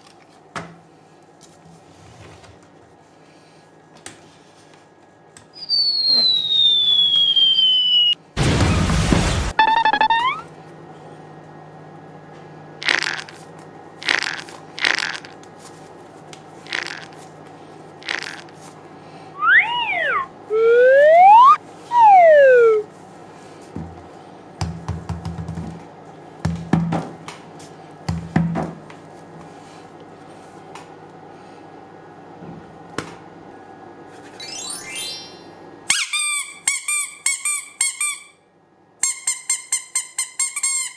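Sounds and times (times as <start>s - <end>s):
whistle gliding up and down: 5.6s - 8.2s, 9.6s - 10.5s, 19.3s - 22.9s, 34.4s - 36.6s
cartoon whooshes: 19.4s - 22.8s.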